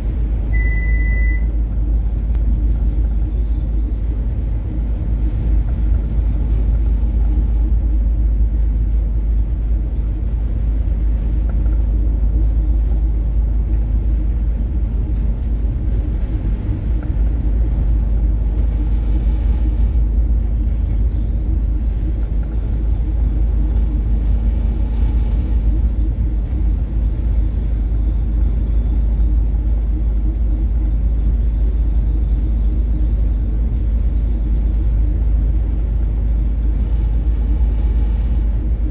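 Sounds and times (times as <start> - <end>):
ship engine humming: 0.0 - 38.9.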